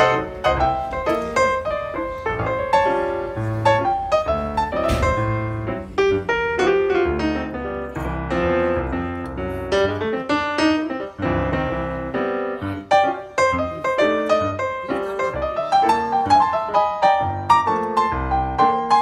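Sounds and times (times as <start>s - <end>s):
lively piano music: 0.0s - 19.0s.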